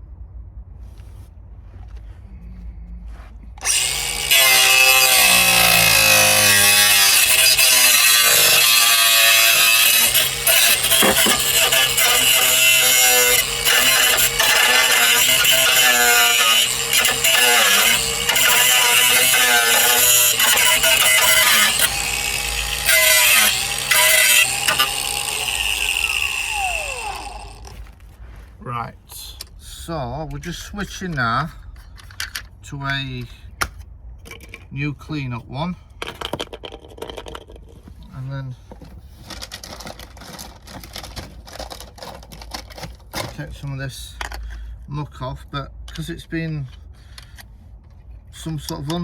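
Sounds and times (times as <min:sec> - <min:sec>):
angle grinder grinding steel: 0:03.6 - 0:27.9.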